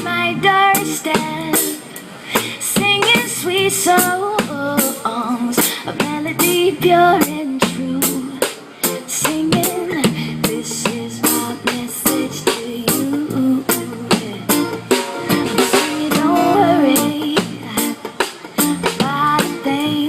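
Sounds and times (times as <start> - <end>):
bass guitar: 0.0 - 5.0, 5.6 - 20.0
drums playing steady beat: 0.0 - 20.0
reggae guitar strumming: 8.3 - 19.7.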